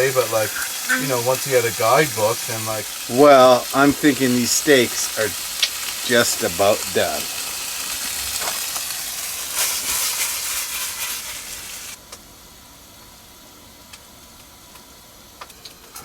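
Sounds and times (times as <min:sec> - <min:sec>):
steaks sizzling in frying pan: 0:00.0 - 0:12.0
faint hiss: 0:00.0 - 0:16.0.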